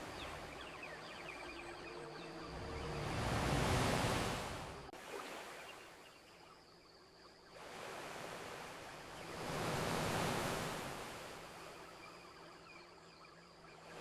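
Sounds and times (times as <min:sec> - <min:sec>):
ocean waves washing ashore: 0:00.0 - 0:06.1, 0:07.6 - 0:14.0.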